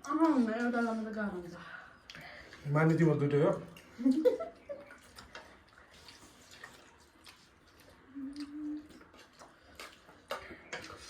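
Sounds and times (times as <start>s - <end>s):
clicks and taps of eating: 6.5s - 11.0s
person humming: 8.1s - 8.9s.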